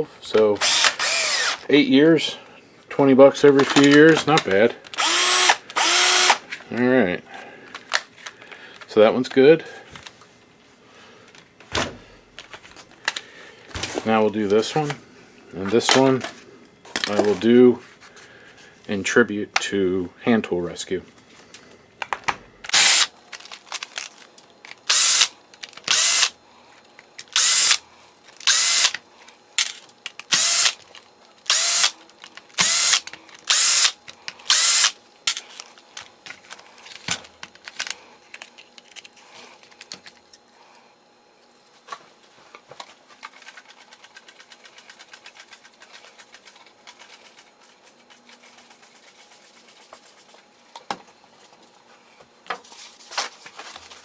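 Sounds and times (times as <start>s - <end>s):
cordless drill motor bursts: 0.6s - 1.6s, 5.0s - 6.4s, 22.7s - 23.1s, 23.7s - 24.1s, 24.9s - 25.3s, 25.9s - 26.3s, 27.3s - 27.8s, 28.4s - 29.0s, 29.6s - 30.8s, 31.5s - 32.0s, 32.6s - 35.4s.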